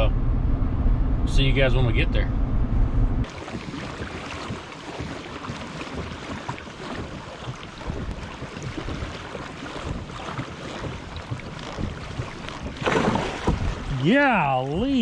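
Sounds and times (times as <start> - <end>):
wind buffeting microphone: 2.3 - 15.0
water lapping against kayak hull: 3.2 - 15.0.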